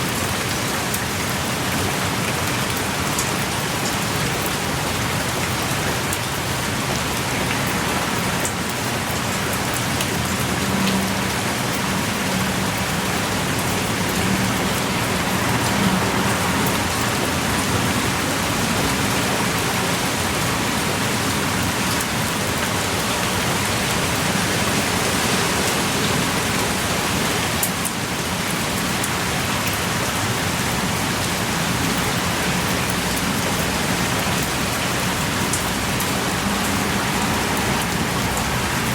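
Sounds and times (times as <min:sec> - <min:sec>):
pouring rain: 0:00.0 - 0:38.9.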